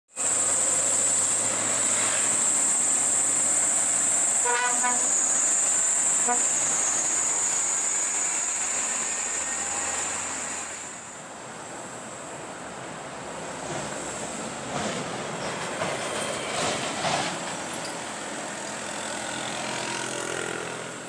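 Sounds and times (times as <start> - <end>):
high-pitched whine: 0.2 - 11.2
vehicle horn toots: 4.4 - 5.6, 6.2 - 6.8.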